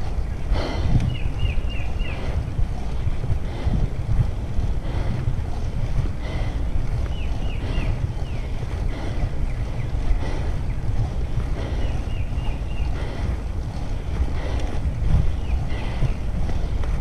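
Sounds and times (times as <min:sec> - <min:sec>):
wind buffeting microphone: 0:00.0 - 0:17.0
bird chirping: 0:01.1 - 0:02.5, 0:07.0 - 0:11.0, 0:11.6 - 0:13.3.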